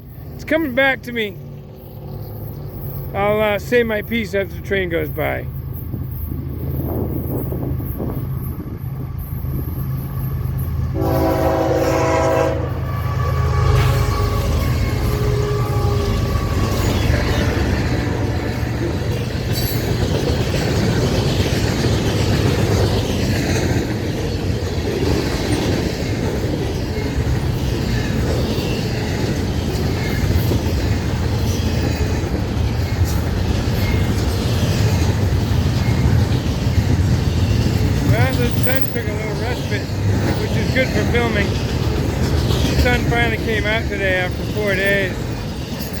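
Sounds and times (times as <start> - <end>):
freight train wheels rumbling: 0.0 - 46.0
train cars clattering: 0.0 - 46.0
train horn: 10.9 - 19.0.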